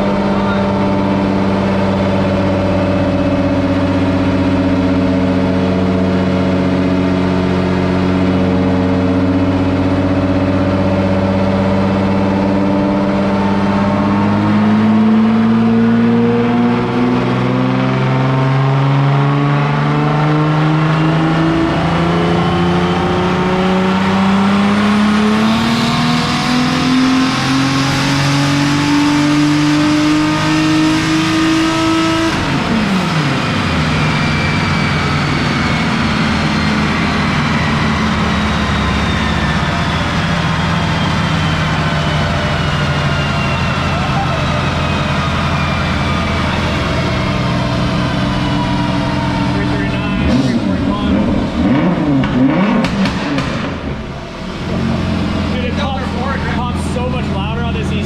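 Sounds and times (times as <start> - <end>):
turbocharged car engine under load: 0.0 - 58.0.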